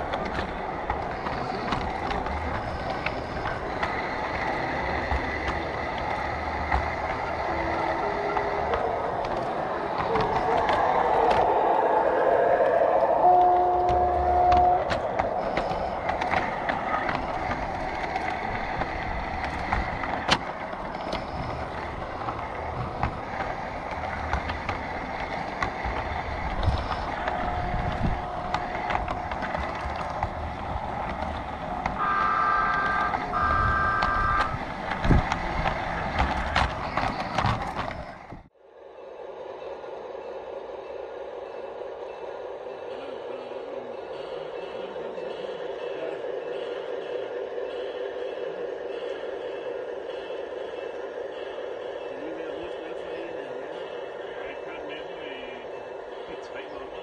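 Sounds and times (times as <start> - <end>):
model train wheels rolling on rails: 0.0 - 38.5, 39.6 - 57.0
clicks: 12.6 - 38.5
train horn toots: 13.0 - 15.3, 31.2 - 35.8.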